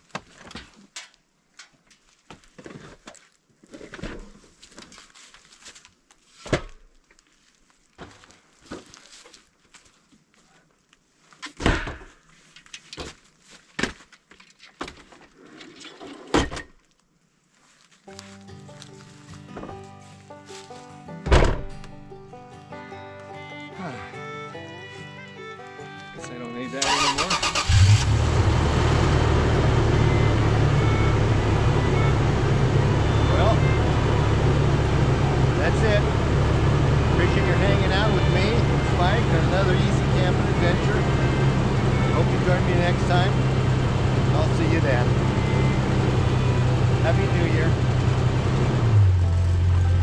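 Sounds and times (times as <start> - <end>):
rustling and handling noise: 0.0 - 22.1
thumps and knocks of camping gear: 6.4 - 6.9
engine cranking: 26.8 - 50.0
engine running with low rumble: 26.9 - 50.0.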